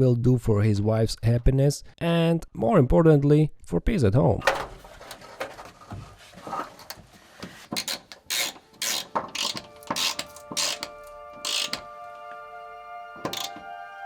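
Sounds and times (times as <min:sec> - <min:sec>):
metal scraping: 0:04.4 - 0:12.2, 0:13.2 - 0:13.6
background music: 0:06.6 - 0:14.0
ratchet wrench clicking: 0:07.8 - 0:11.9, 0:13.3 - 0:13.6.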